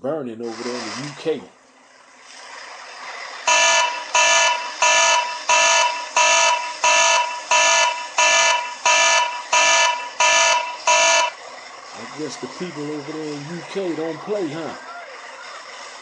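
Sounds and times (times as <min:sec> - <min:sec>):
electronic alarm beeping: 0:03.5 - 0:11.4.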